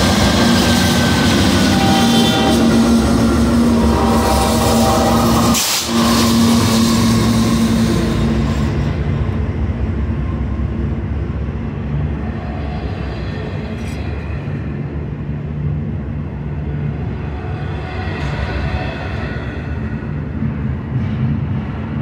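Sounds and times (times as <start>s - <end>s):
locomotive diesel engine humming: 0.0s - 17.5s
freight cars rolling: 0.0s - 22.0s.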